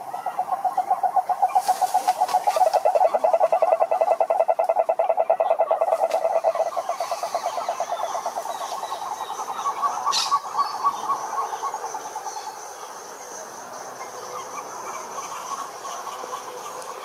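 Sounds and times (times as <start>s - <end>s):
frog slow pulsed call: 0.0s - 1.6s, 2.2s - 12.3s
frogs croaking: 0.0s - 17.0s.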